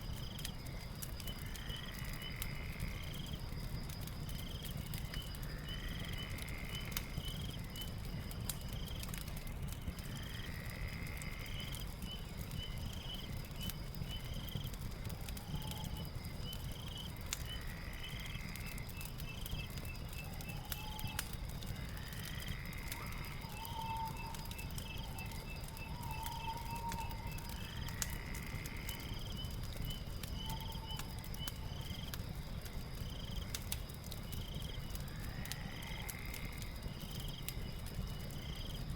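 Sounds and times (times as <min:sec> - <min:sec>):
fire crackling: 0:00.0 - 0:38.9
high insect trill: 0:00.0 - 0:38.9.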